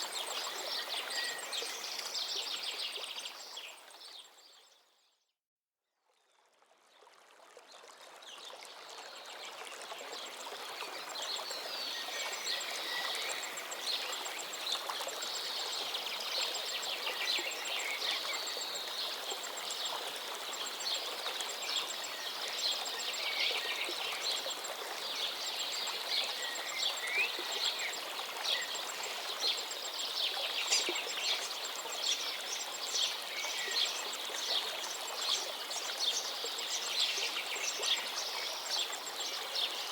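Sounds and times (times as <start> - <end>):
river flowing: 0.0 - 4.4, 7.0 - 39.9.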